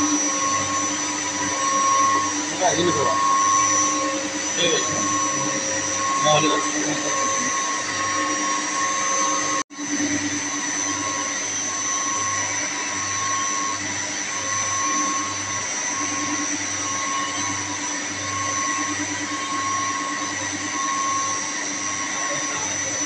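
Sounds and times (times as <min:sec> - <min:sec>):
pulsing low hum: 0:00.0 - 0:09.6
electric motor whine: 0:00.0 - 0:23.0.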